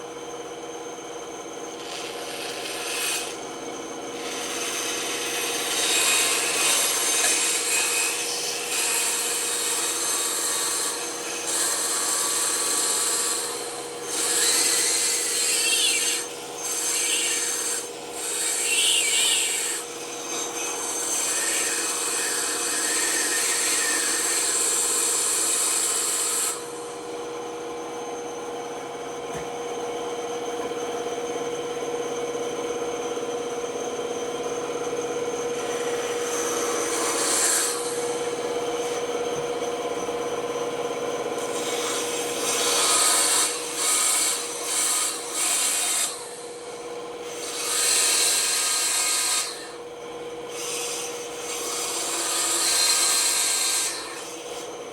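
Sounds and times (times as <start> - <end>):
bandsaw motor humming: 0.0 - 54.9
bandsaw blade cutting wood: 1.7 - 3.4, 4.2 - 26.9, 35.6 - 39.0, 41.4 - 49.8, 50.5 - 54.8.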